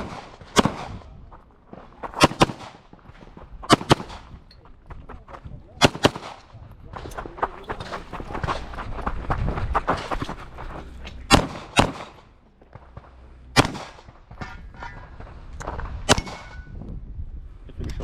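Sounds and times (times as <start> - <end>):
pistol shots: 0.0 - 1.2, 2.0 - 2.9, 3.7 - 4.4, 5.8 - 6.6, 11.3 - 12.3, 12.9 - 14.4, 16.0 - 16.7.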